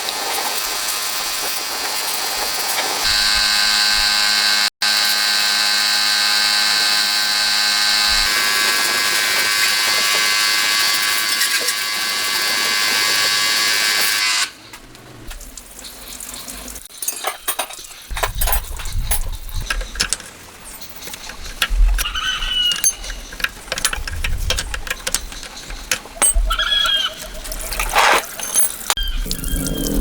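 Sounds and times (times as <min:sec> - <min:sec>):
power tool motor whining: 0:03.0 - 0:14.5.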